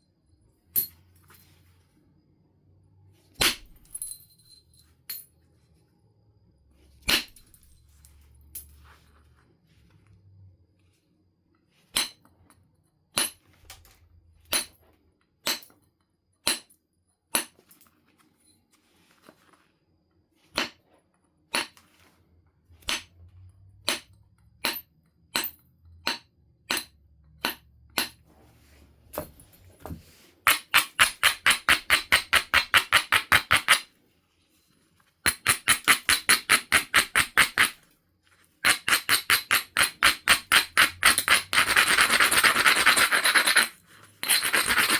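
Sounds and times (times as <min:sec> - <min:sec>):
stone rubbing strokes: 0:38.6 - 0:44.9.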